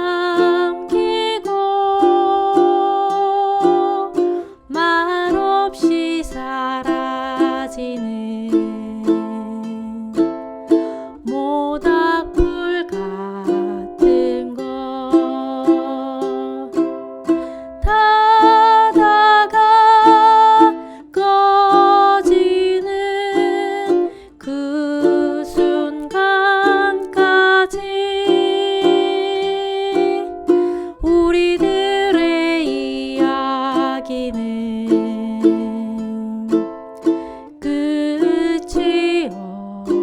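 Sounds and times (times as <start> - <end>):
ukulele waltz strumming: 0.0 - 40.0.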